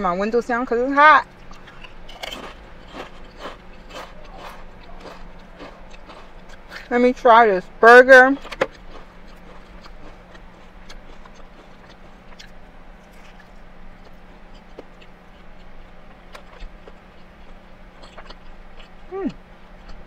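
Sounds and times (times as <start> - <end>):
low hum: 0.0 - 20.0
person chewing: 1.2 - 6.9, 8.4 - 20.0
person humming mm: 19.1 - 19.4.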